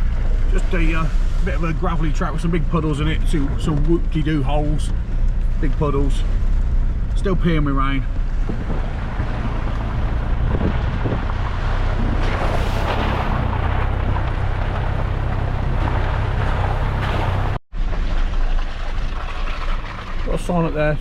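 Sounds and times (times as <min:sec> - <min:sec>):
truck engine drone: 0:00.0 - 0:21.0
tyres on gravel: 0:00.0 - 0:21.0
rain: 0:08.2 - 0:21.0.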